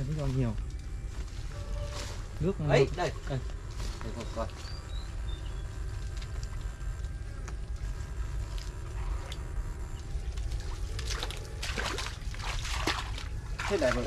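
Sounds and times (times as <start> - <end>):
steady low rumble: 0.0 - 14.0
water splashing and sloshing: 10.1 - 14.0.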